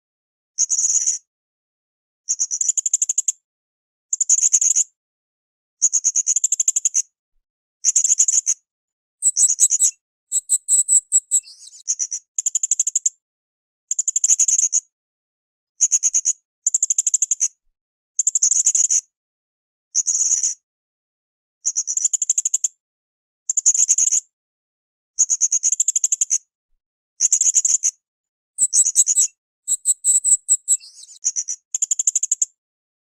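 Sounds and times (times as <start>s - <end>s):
choppy parrot calls with clicks: 9.2s - 11.9s, 28.6s - 32.6s
parrot buzzing trills: 28.6s - 30.8s.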